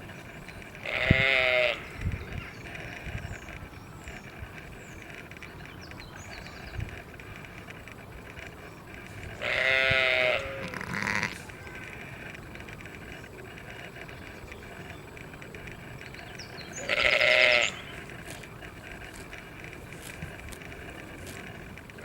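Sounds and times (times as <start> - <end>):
outdoor background hiss: 0.0 - 22.0
farm animal bleating: 0.6 - 3.2, 9.0 - 12.8, 16.7 - 22.0.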